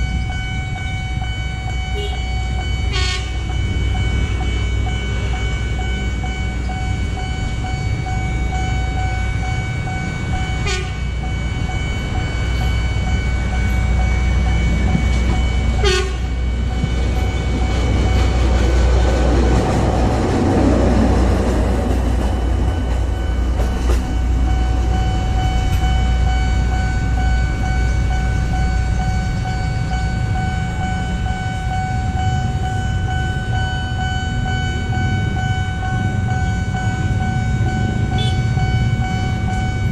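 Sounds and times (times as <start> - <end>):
rushing noise: 0.0 - 39.9
train rumble and whine: 0.0 - 39.9.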